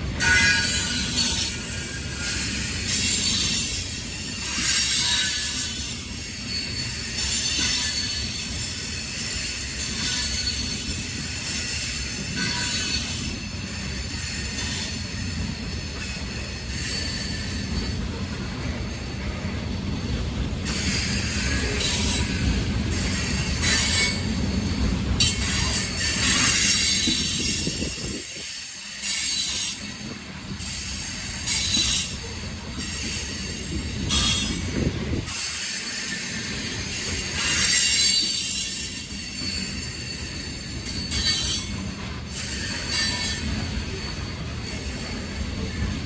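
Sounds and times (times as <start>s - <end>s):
train wheels rumbling on rails: 0.0s - 46.0s
high-pitched wheel squeal: 4.2s - 18.2s.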